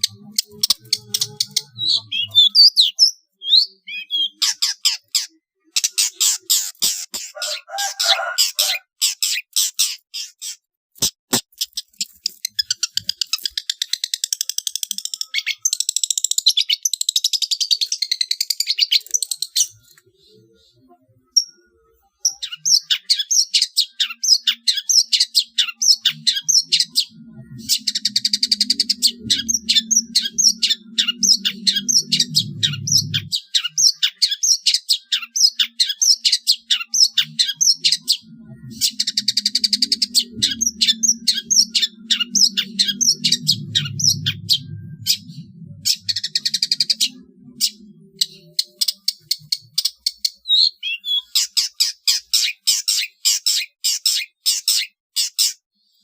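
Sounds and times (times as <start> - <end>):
buzzy bird chattering: 0.0 - 17.3
low hum: 26.0 - 33.4, 37.0 - 48.8.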